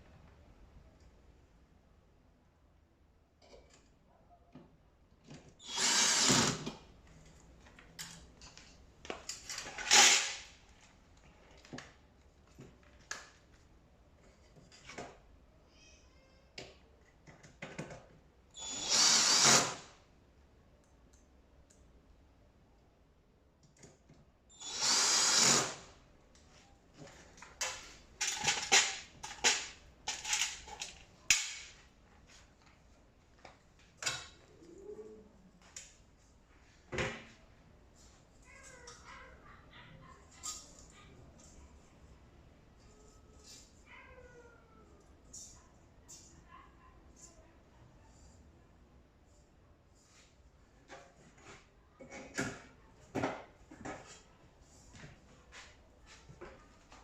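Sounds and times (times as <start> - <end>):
power drill driving screws: 5.6 - 6.8, 9.6 - 10.5, 18.6 - 19.9, 24.6 - 25.9.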